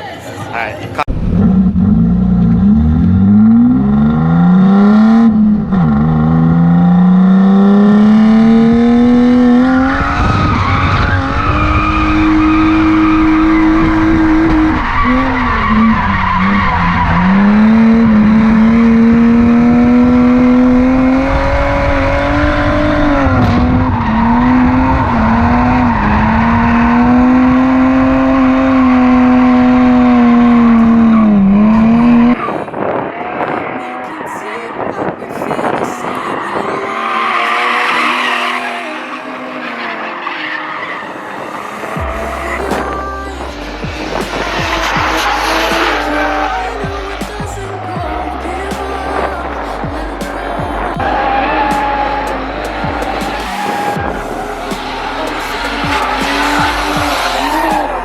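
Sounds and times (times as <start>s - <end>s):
tyres skidding and squealing: 0.0s - 58.0s
car engine revving hard: 1.0s - 34.0s, 36.6s - 58.0s.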